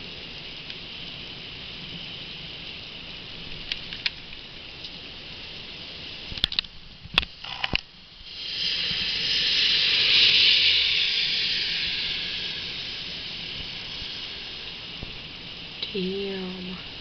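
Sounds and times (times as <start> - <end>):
heavy rain pouring: 7.9 - 17.0.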